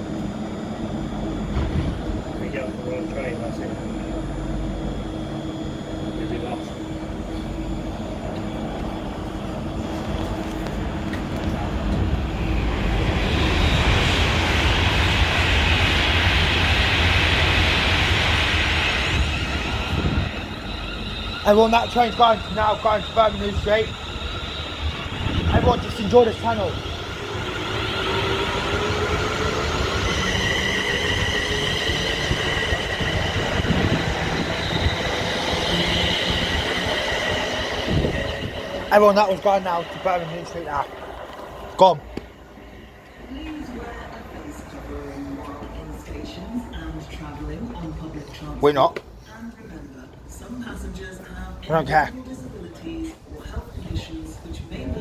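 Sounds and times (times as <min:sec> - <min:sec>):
train rumbling with hiss: 0:05.3 - 0:48.5.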